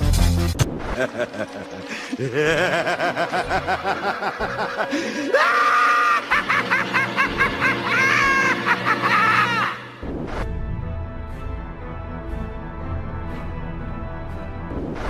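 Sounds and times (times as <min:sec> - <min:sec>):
person laughing shrilly: 0:01.0 - 0:09.8.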